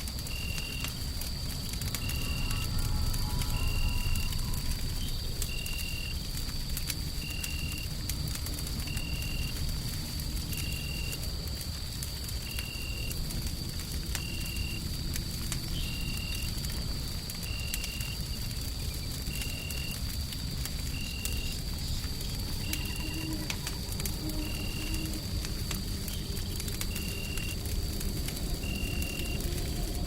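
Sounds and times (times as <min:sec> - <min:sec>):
faint high whine: 0:00.0 - 0:06.4, 0:22.2 - 0:30.0
wood fire crackling: 0:00.0 - 0:30.0.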